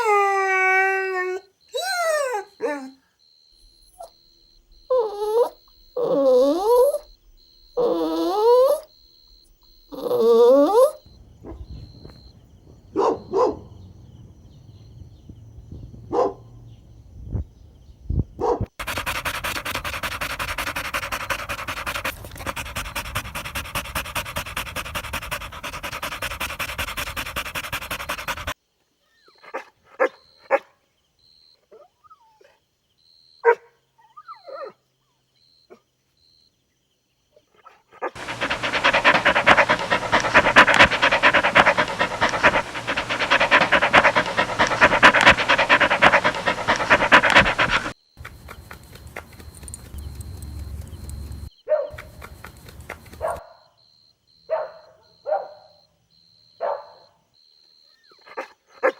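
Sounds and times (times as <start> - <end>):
dog barking and yipping: 13.0 - 13.6, 16.1 - 16.4, 18.4 - 28.6, 38.0 - 48.0, 51.7 - 52.1, 53.1 - 53.6
dog panting: 18.8 - 28.6, 38.2 - 53.4.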